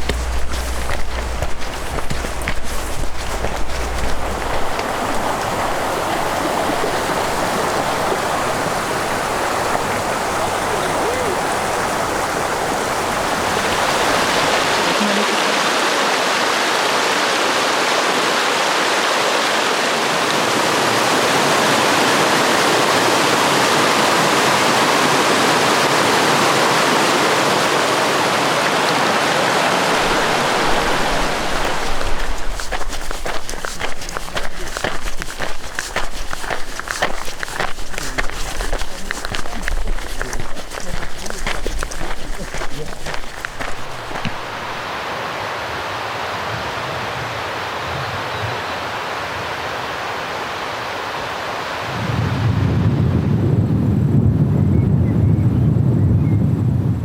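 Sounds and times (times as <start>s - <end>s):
flowing water rushing: 0.0s - 24.7s, 28.4s - 46.5s.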